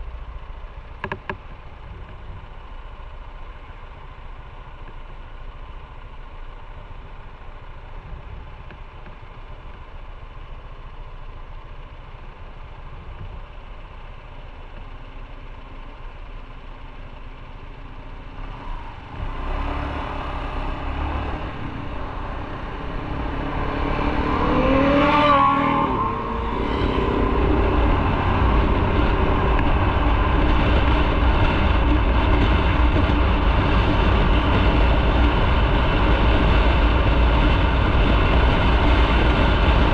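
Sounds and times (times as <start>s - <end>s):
motorcycle engine: 0.0s - 39.9s
wind noise: 21.2s - 39.9s.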